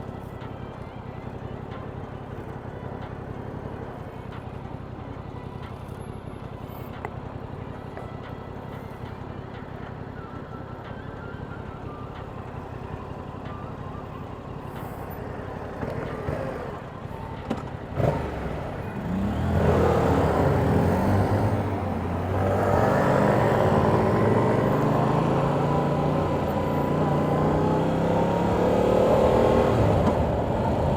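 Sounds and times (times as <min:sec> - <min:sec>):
motorcycle engine accelerating: 0:17.6 - 0:30.9.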